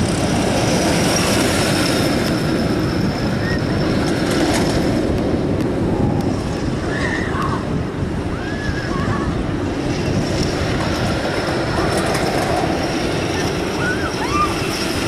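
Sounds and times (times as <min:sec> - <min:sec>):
roller coaster rumbling on track: 0:00.0 - 0:15.0
high squeals: 0:13.2 - 0:15.0.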